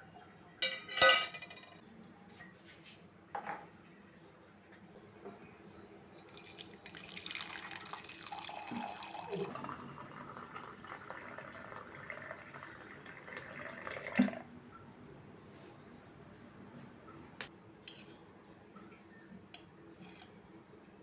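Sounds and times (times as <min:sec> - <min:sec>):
tap water running into sink: 0:06.3 - 0:14.4.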